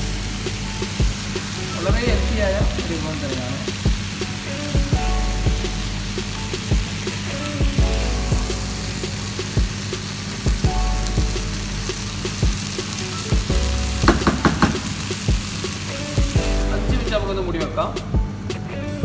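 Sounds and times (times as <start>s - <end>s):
food sizzling in a frying pan: 0.0s - 16.9s
spatula knocking and scraping pan: 14.0s - 15.0s.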